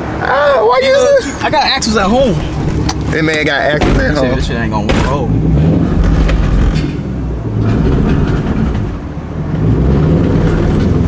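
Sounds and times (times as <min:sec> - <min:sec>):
car engine idling: 0:01.2 - 0:09.5.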